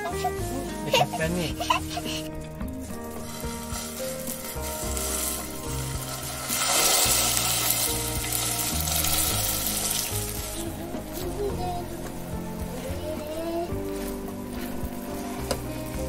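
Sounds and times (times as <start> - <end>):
mince sizzling in frying pan: 0.0 - 16.0.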